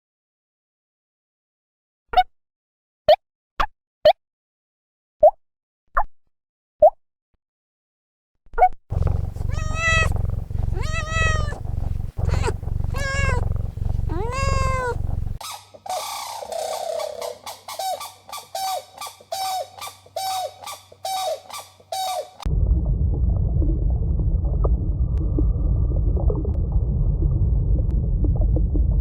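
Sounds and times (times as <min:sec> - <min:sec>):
cat meowing: 0:08.9 - 0:15.4
cat purring: 0:08.9 - 0:15.4.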